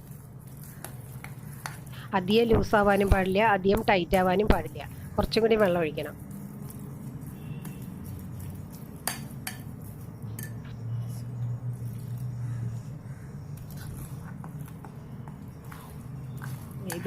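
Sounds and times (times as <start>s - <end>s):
steady low hum: 0.0s - 17.0s
spoon clinking against bowl: 10.3s - 10.7s.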